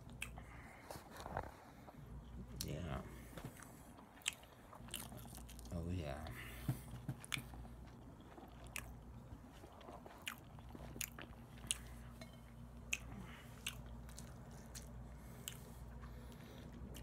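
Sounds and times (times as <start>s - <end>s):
chewing with wet mouth clicks: 0.0s - 0.4s, 3.6s - 5.7s, 7.0s - 17.0s.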